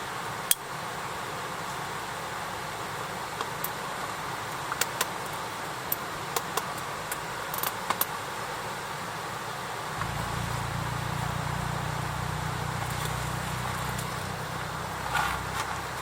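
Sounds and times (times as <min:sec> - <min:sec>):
campfire crackling: 0:09.9 - 0:16.0.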